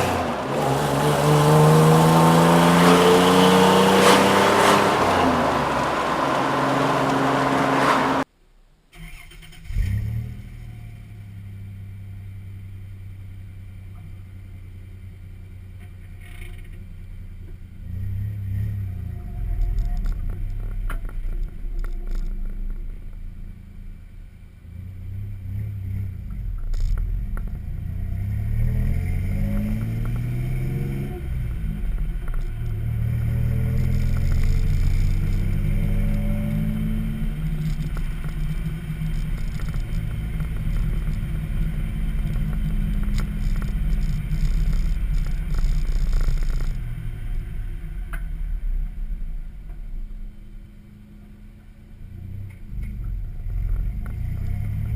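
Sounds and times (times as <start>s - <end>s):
engine exhaust revving: 0.0s - 8.3s, 27.6s - 48.9s.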